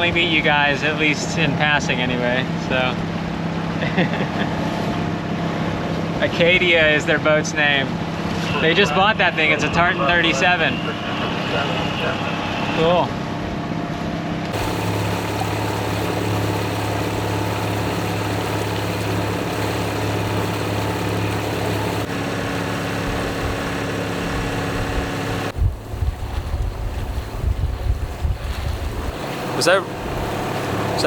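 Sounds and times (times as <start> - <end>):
boat engine humming: 14.6 - 31.0
water noise: 14.6 - 31.0
wind buffeting microphone: 22.7 - 31.0.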